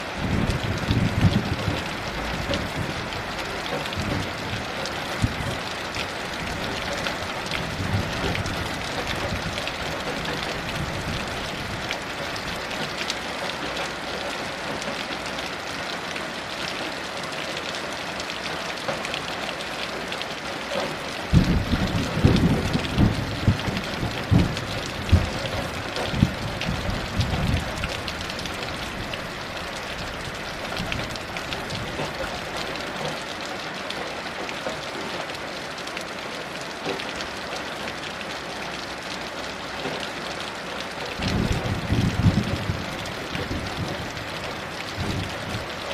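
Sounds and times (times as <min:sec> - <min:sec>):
heavy rain falling: 0:00.0 - 0:45.9
thunder cracking and rolling: 0:00.1 - 0:04.6, 0:21.3 - 0:29.0, 0:41.2 - 0:45.7.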